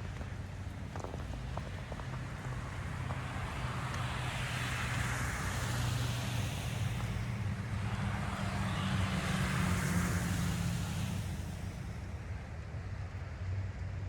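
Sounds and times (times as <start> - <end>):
vehicle passing: 1.4 - 12.1.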